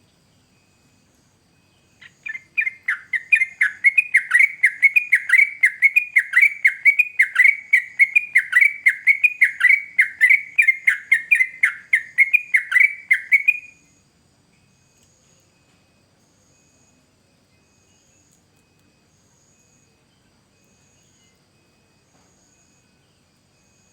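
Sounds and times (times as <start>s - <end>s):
bird singing whistled notes: 1.6s - 14.0s.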